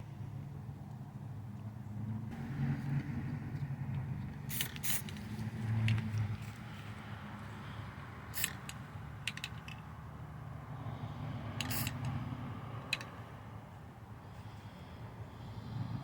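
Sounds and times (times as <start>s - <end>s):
clicks and knocks of handled tools: 3.9s - 6.6s, 8.4s - 9.9s, 12.9s - 13.1s.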